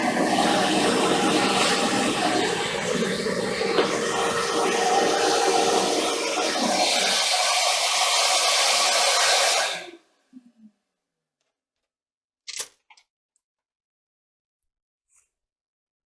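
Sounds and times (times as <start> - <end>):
electric blower running: 0.0 - 9.9.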